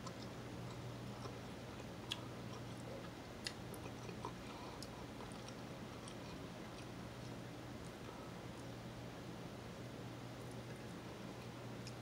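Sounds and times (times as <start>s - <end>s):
person chewing: 0.0s - 8.7s
low steady hum: 0.0s - 12.0s.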